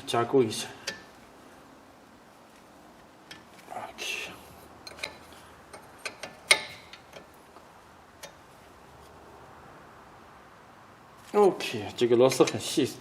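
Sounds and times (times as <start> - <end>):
wrench scraping: 3.2 - 3.7, 4.6 - 8.5, 12.3 - 12.8
metal wrench clicking: 4.8 - 7.4.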